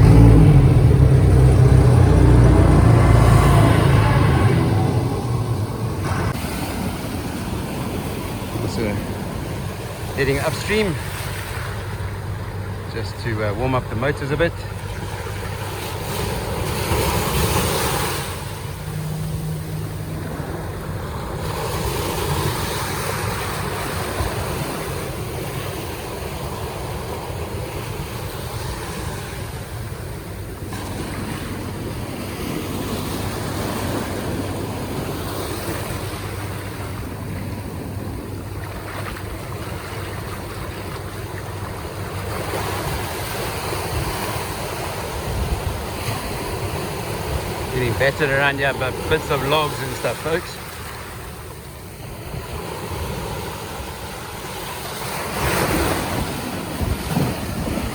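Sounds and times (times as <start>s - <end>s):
surf and rushing water: 0.0s - 57.9s
wind buffeting microphone: 14.9s - 48.2s, 55.3s - 57.9s.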